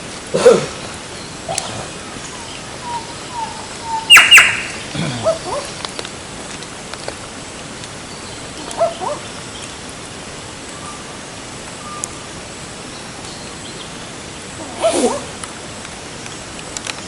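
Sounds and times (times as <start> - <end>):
outdoor ambient hiss: 0.0 - 17.0
short gliding calls: 1.4 - 5.8.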